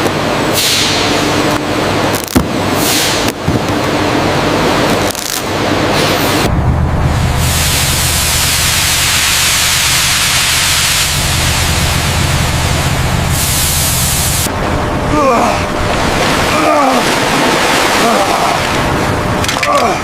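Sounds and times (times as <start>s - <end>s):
low even rumble: 5.5s - 19.6s
spraying water hiss: 7.4s - 14.5s.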